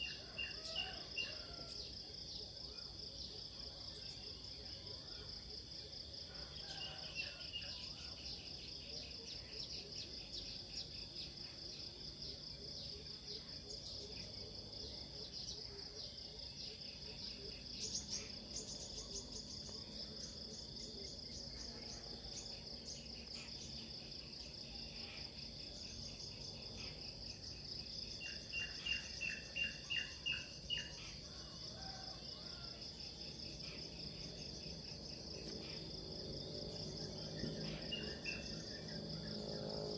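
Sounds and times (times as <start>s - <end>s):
crickets and insects chirring: 0.0s - 39.9s
birds chirping: 36.8s - 39.9s.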